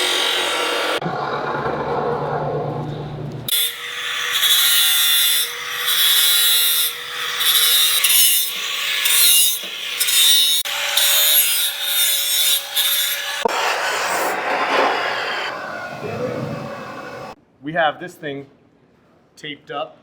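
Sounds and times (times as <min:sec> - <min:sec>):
power tool grinding metal: 0:00.0 - 0:01.8, 0:03.5 - 0:17.4
motor hum: 0:00.0 - 0:03.5.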